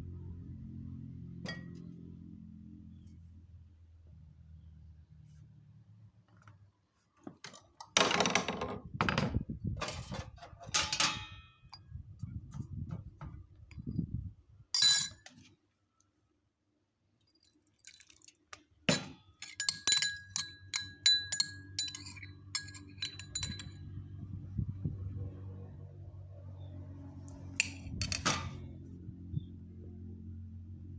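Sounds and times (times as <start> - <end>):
dishes and glassware clinking: 14.8 - 15.2, 18.9 - 23.8.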